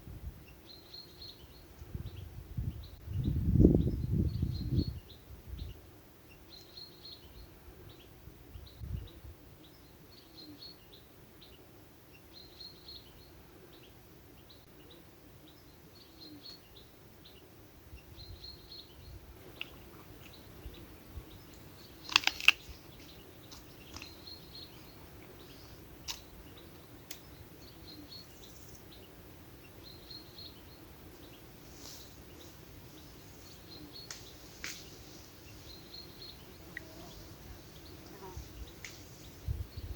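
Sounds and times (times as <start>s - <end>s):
small bird chirping: 12.2s - 39.9s.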